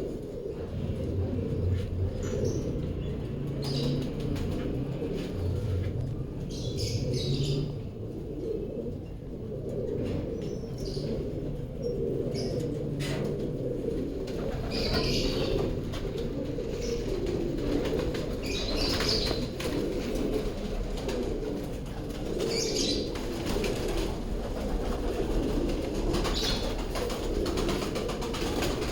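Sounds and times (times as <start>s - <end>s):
pigeons cooing: 0.0s - 28.9s
pigeons flapping wings: 2.7s - 6.3s, 12.7s - 28.9s.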